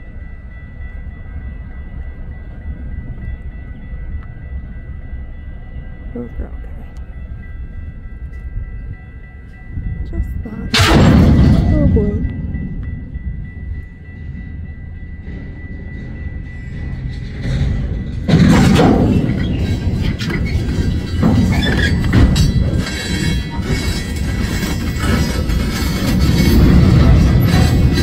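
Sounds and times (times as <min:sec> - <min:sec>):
train cars rolling rumble: 0:00.0 - 0:28.0
steel wheels grinding and clanking: 0:10.7 - 0:28.0
high metallic squealing: 0:16.5 - 0:28.0.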